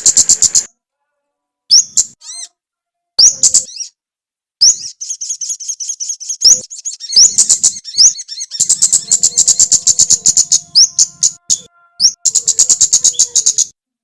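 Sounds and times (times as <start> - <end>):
small songbird chirping rapidly: 1.7 - 2.5, 3.2 - 4.0, 4.6 - 13.7.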